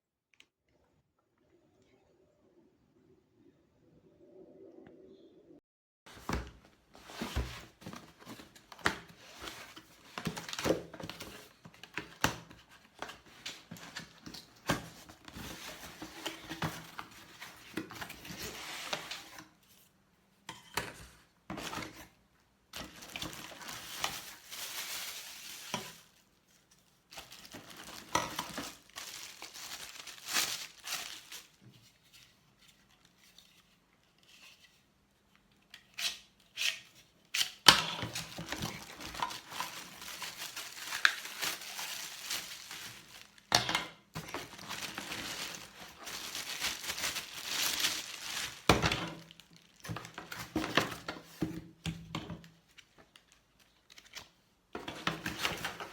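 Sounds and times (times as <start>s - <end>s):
rustling: 22.8s - 34.9s, 38.0s - 43.5s, 44.2s - 51.4s.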